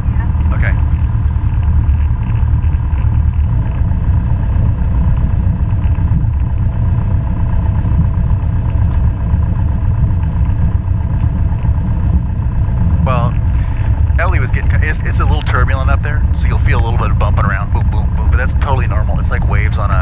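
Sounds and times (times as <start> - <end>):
aircraft engine and propeller drone: 0.0 - 20.0.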